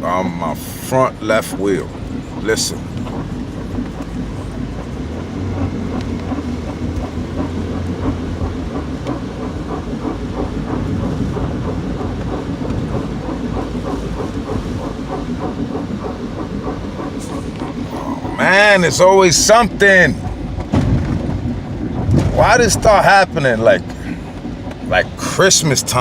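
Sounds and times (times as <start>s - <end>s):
rhythmic wheel scraping: 0.0s - 26.0s
car rumble on road: 1.6s - 26.0s.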